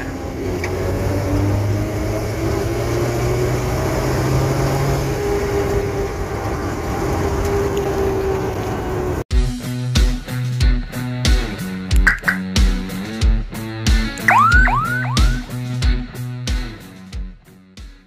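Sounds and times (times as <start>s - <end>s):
road noise: 0.0s - 9.3s
music: 9.3s - 18.0s.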